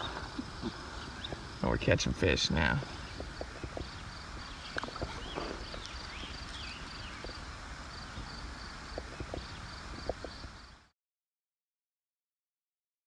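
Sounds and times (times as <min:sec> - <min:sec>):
high bird chirp: 0:03.0 - 0:07.4.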